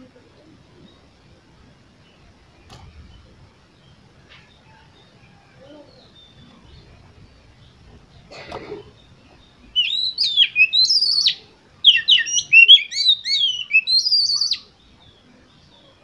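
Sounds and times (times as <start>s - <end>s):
bird singing whistled phrases: 9.7s - 14.7s.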